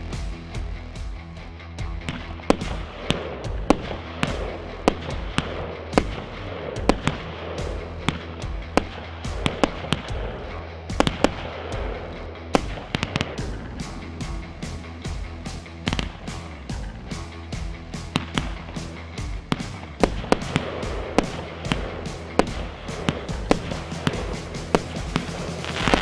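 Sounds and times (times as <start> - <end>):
background music with bass: 0.0 - 26.0
fireworks bangs and pops: 2.0 - 14.8, 15.4 - 16.9, 17.9 - 26.0.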